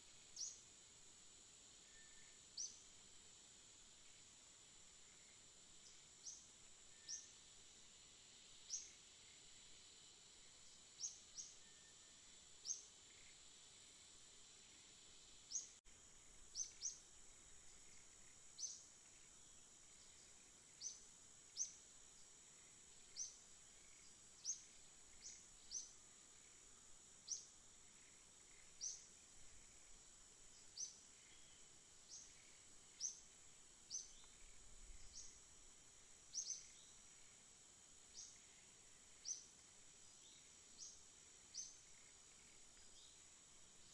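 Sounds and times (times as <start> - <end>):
songbird chirping: 5.0 - 7.4, 14.6 - 37.4, 38.1 - 43.9.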